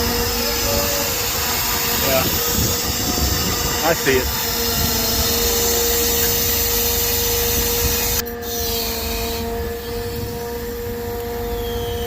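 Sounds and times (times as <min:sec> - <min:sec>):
loud hiss: 0:00.0 - 0:12.0
machinery whine: 0:00.0 - 0:12.0.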